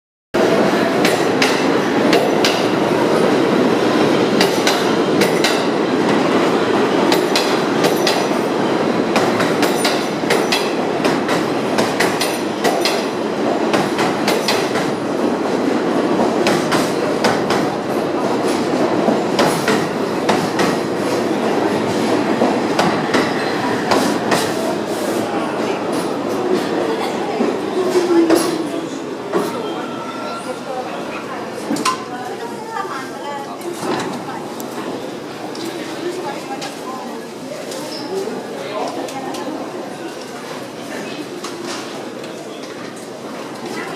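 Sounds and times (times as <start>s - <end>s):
subway train wheels rumbling: 0.4s - 43.9s
wheels clacking over rail joints: 18.4s - 26.7s.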